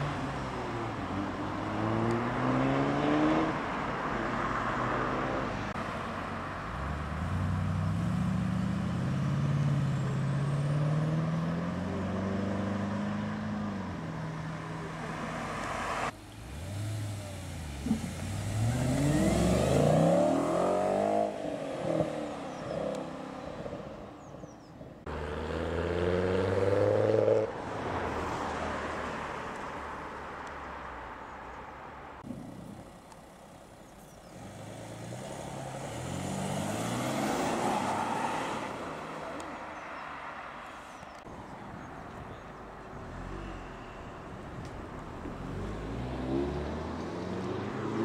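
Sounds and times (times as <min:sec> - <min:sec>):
cars accelerating through gears: 0:01.6 - 0:05.6, 0:06.9 - 0:23.8, 0:34.3 - 0:39.5, 0:45.4 - 0:48.0.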